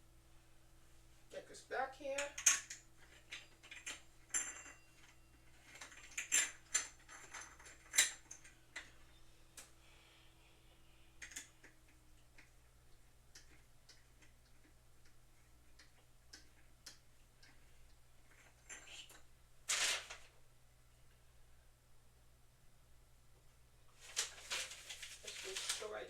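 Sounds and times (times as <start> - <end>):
faint steady hum: 0.0 - 26.0
light clicks and taps: 11.2 - 19.2.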